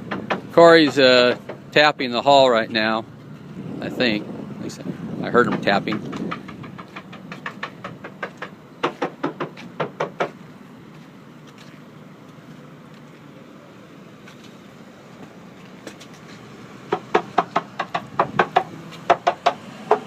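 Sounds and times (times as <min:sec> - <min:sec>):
sharp taps on fiberglass hull: 0:00.0 - 0:01.8, 0:05.3 - 0:10.4, 0:16.9 - 0:20.0.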